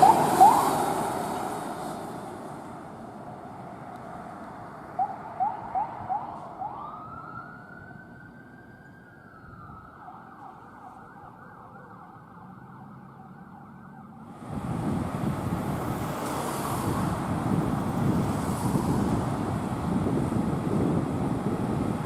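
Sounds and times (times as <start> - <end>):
electronic siren wailing and yelping: 0.0 - 1.0, 5.0 - 8.4
road noise: 0.0 - 22.0.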